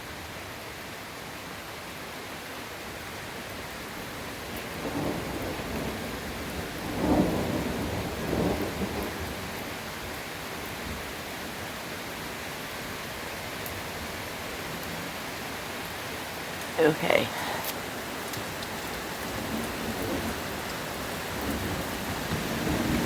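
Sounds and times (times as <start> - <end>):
steady rain: 0.0 - 23.0
thunder rumbling: 4.8 - 9.5, 21.2 - 23.0.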